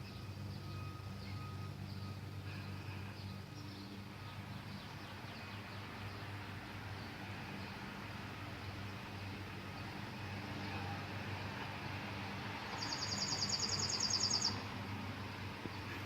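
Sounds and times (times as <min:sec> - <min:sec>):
distant engine hum: 0:00.0 - 0:16.0
songbird trilling: 0:12.8 - 0:14.6.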